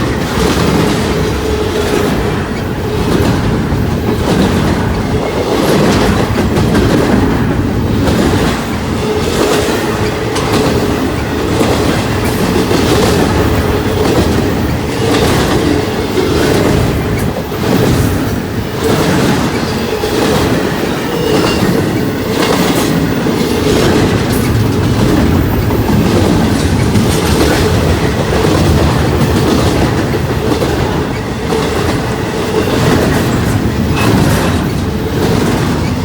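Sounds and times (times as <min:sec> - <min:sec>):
train wheels clacking over rail joints: 0:00.0 - 0:36.0
thin squeal from train wheels: 0:18.8 - 0:23.6.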